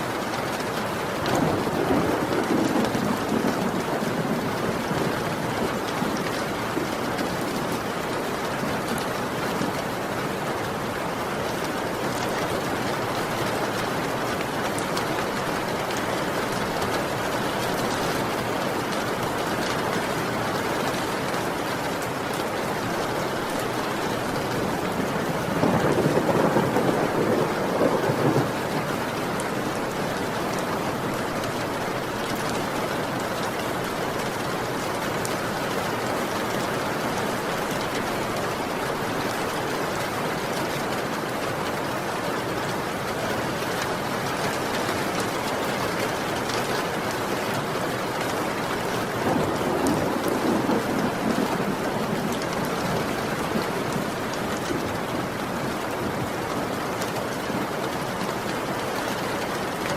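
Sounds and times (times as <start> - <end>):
heavy rain falling: 0.0 - 59.9
thunder rumbling: 1.2 - 9.1, 23.0 - 32.4, 48.4 - 56.2.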